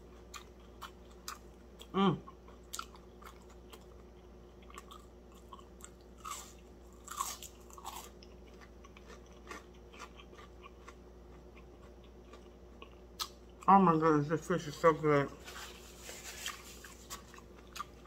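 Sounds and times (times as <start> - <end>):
soft chewing clicks: 0.1 - 13.7
crunching fried crust: 2.4 - 13.5, 14.7 - 18.0.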